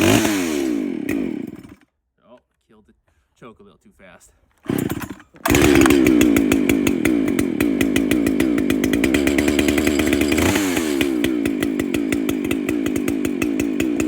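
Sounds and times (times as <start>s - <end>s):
chainsaw running: 0.0s - 1.9s, 4.6s - 14.0s.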